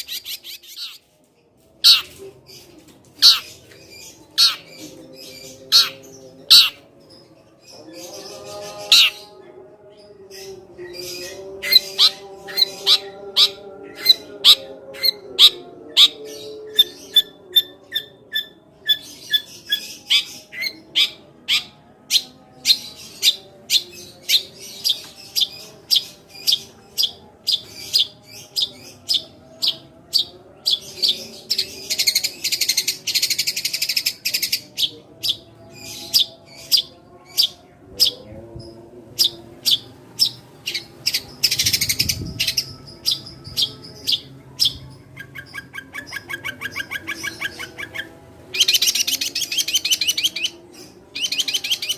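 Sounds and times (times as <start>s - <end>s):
harsh buzzy bird chattering: 5.7s - 6.8s.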